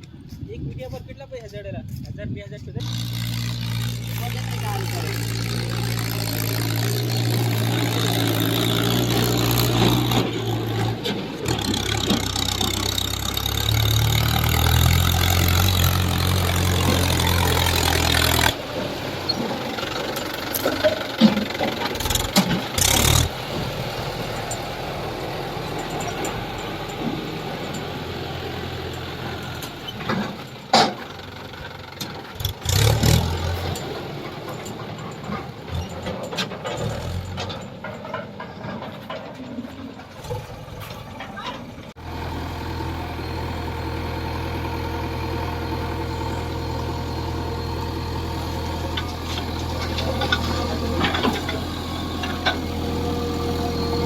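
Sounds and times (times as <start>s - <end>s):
diesel engine running: 0.0s - 54.0s
sharp knocks and clanks: 29.3s - 31.2s, 49.0s - 52.8s.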